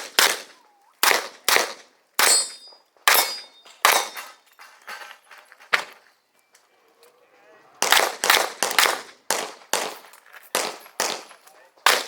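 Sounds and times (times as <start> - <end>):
handgun shots: 0.0 - 4.2, 7.8 - 11.3
metallic ring of steel targets: 2.2 - 4.6.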